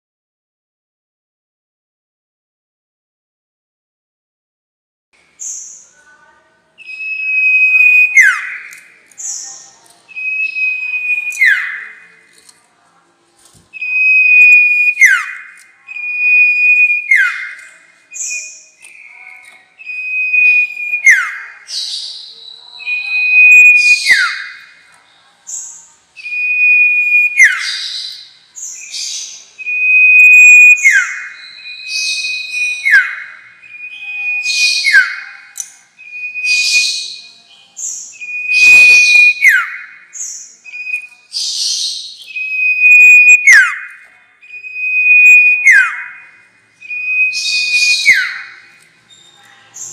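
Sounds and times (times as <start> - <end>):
bird chirps: 5.4 - 6.2, 6.8 - 12.4, 13.7 - 49.9
bird whistling call: 6.8 - 9.4, 10.1 - 12.0, 13.8 - 24.8, 26.2 - 49.4.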